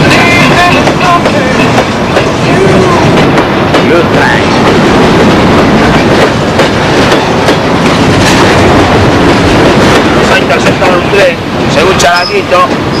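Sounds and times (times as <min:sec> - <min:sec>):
train rumbling on rails: 0:00.0 - 0:13.0
wheels clickety-clack: 0:00.0 - 0:13.0.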